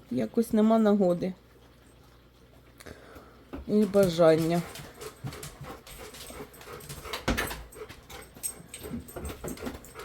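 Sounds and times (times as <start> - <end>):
dog panting: 3.8 - 10.0.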